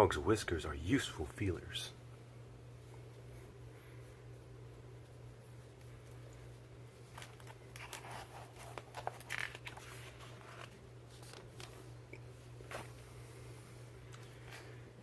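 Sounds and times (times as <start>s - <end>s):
paper rustling: 7.1s - 12.0s, 12.6s - 13.0s.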